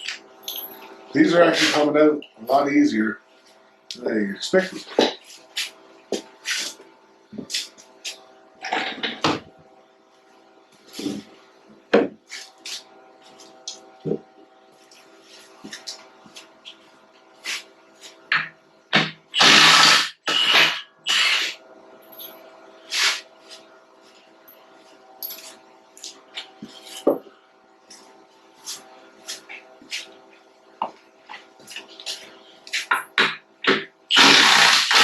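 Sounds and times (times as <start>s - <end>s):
power tool bursts: 19.4s - 21.6s, 34.1s - 35.0s.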